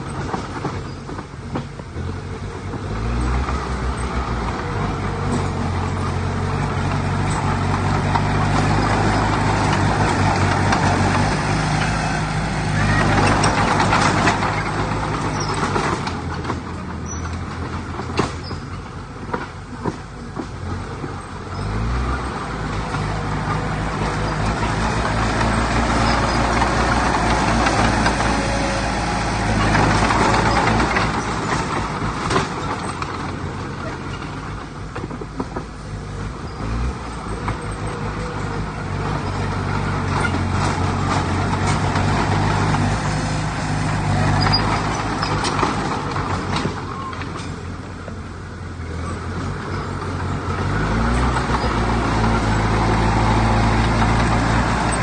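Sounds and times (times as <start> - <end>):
heavy diesel engine under load: 0.0 - 55.0
short knocks and rattles: 2.6 - 21.2, 22.3 - 47.7.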